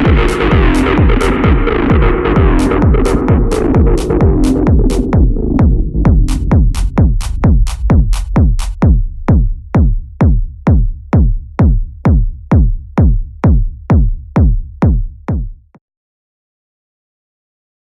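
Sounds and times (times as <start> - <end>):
drum machine kick drum: 0.0 - 15.8
bright hi-hat hits: 2.4 - 5.1, 6.2 - 8.8.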